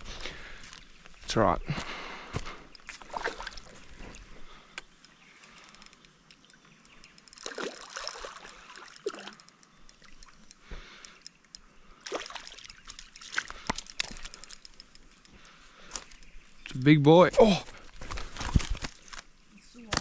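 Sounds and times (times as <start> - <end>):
water splashing and trickling: 2.8 - 4.6, 5.4 - 11.0, 11.9 - 15.3.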